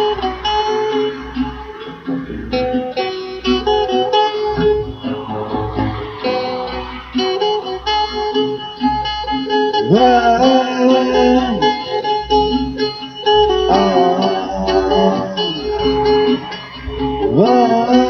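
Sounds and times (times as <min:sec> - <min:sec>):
steady low beat: 0:04.4 - 0:08.6
note sliding upward: 0:04.4 - 0:08.9.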